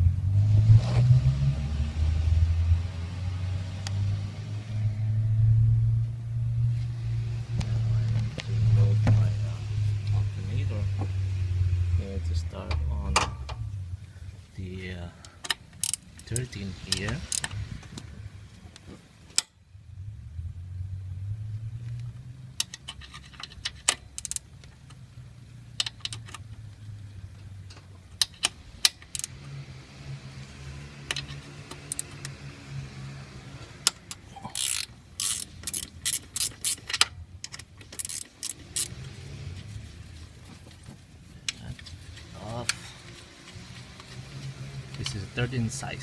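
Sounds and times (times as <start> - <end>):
ratchet wrench clicking: 15.4 - 17.6, 22.6 - 24.5, 28.2 - 29.4, 31.1 - 32.4, 33.8 - 39.0.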